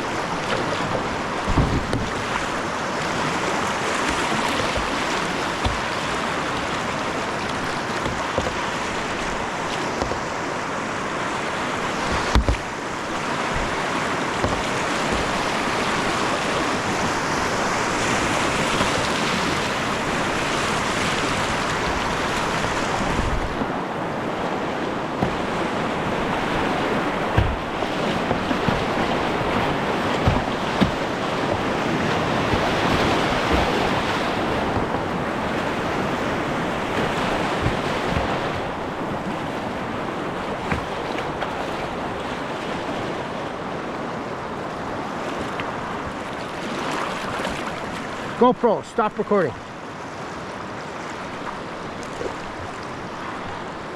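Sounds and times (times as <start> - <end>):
river water rushing around kayak: 0.0 - 53.9
low thumps on microphone: 0.8 - 2.3, 12.0 - 12.7, 13.5 - 17.4, 25.1 - 35.2.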